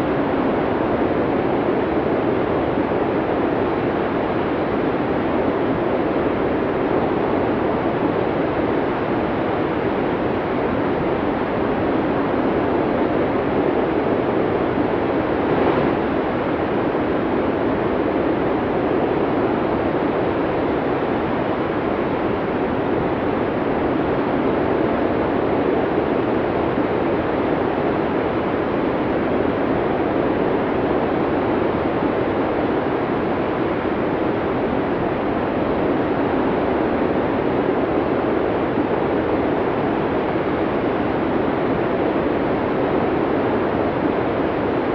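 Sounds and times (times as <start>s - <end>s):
strong wind blowing: 10.9s - 28.0s.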